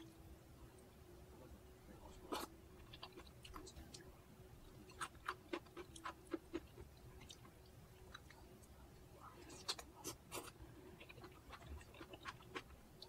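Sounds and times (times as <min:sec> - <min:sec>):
person chewing food: 0:02.3 - 0:04.0, 0:04.6 - 0:08.4, 0:09.5 - 0:12.8.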